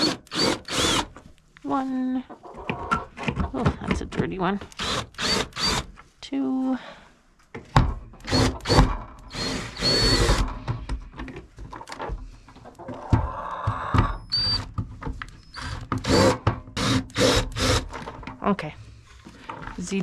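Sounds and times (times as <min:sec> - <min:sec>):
cordless drill whining: 0:00.0 - 0:01.1, 0:04.7 - 0:05.9, 0:08.2 - 0:10.5, 0:15.4 - 0:18.0.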